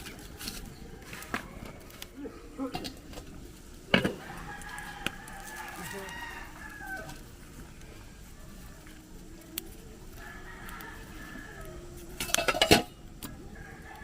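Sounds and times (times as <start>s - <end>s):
rooster crowing: 4.0s - 7.5s, 10.1s - 12.1s, 13.3s - 14.0s.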